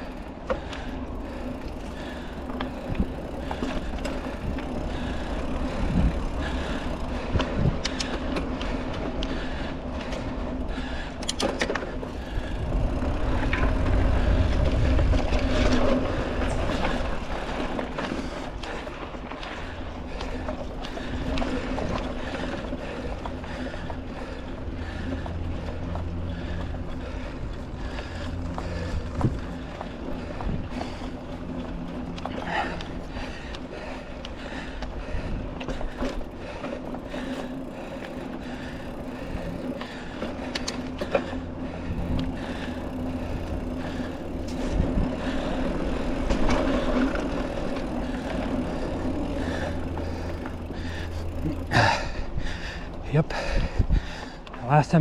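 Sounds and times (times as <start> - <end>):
bike frame rattling: 0.0 - 55.0
bike tyres humming on dirt: 0.0 - 55.0
wind rumble on microphone: 2.7 - 9.2, 12.2 - 18.1, 24.8 - 32.2, 41.8 - 49.1, 49.7 - 54.4.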